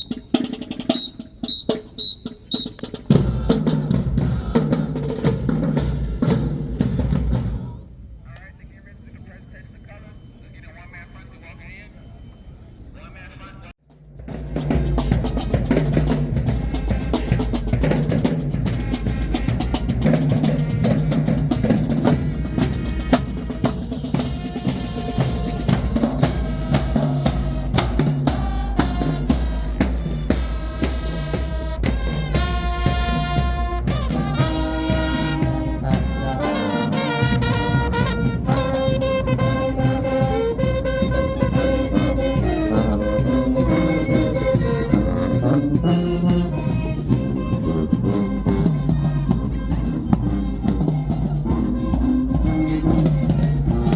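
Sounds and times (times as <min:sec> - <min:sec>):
bass drums and snares beat: 0:13.9 - 0:53.9
brass section held notes: 0:14.7 - 0:53.9.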